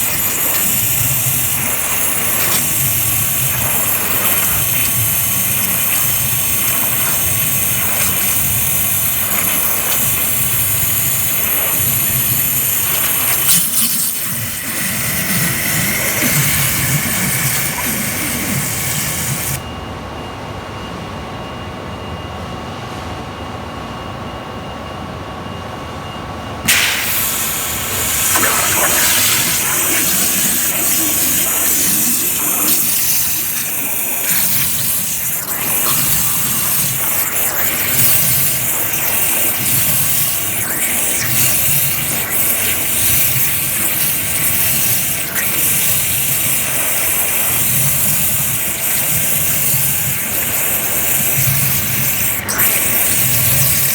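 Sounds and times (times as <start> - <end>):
water jet cutting hiss: 0.0 - 19.6, 26.7 - 53.9
dull machine sound: 26.7 - 53.9.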